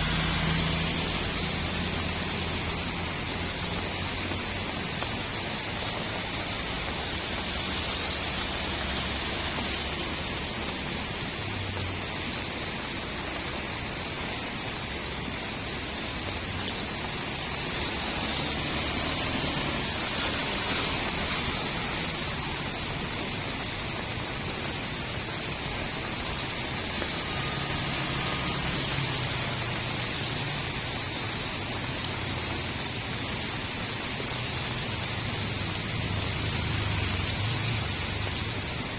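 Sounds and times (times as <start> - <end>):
rain falling on street: 0.0 - 38.9
runoff water gurgling: 0.0 - 38.9.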